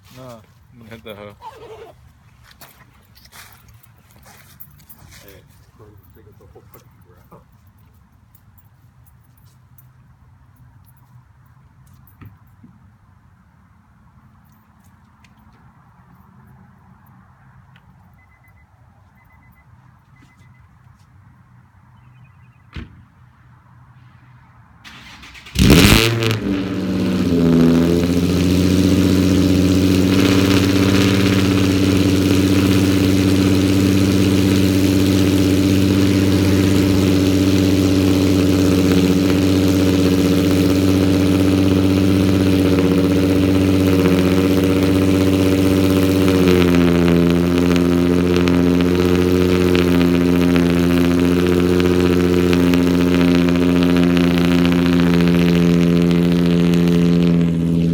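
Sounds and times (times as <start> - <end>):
car engine cold-starting and idling: 24.8 - 57.9.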